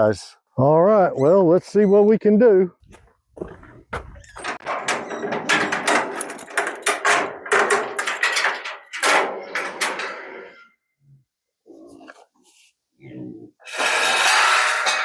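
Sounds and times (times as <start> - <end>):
steel gate rattling and scraping: 4.0 - 10.7, 13.6 - 15.0.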